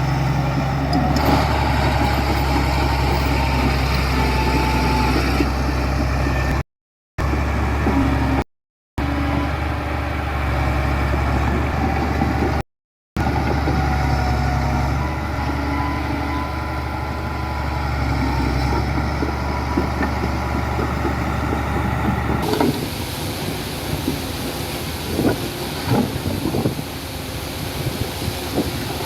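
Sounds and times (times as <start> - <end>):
heavy diesel engine running: 0.0 - 6.6, 7.2 - 8.4, 13.2 - 29.0
wind-like rush: 21.4 - 29.0.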